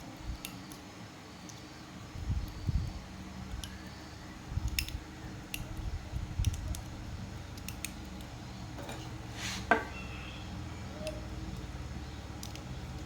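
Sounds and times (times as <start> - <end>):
short scrape: 9.0 - 10.0
small clicks and taps of hand work: 12.4 - 12.7.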